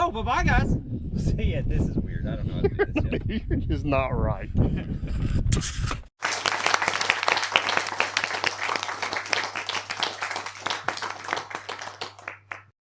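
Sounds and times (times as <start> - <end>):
applause: 6.2 - 12.8.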